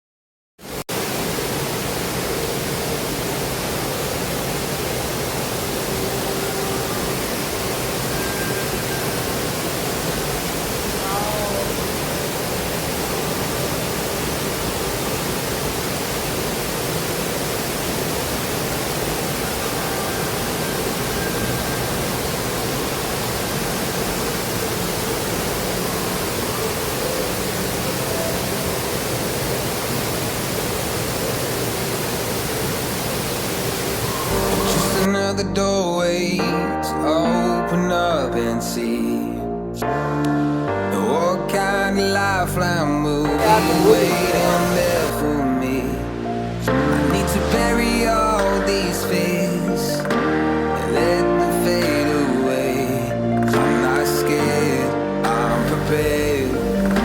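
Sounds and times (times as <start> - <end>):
steady rushing noise: 0.7 - 35.1
faint high tones: 5.4 - 14.8
falling whistle: 6.0 - 10.3, 19.4 - 23.6, 34.0 - 35.1.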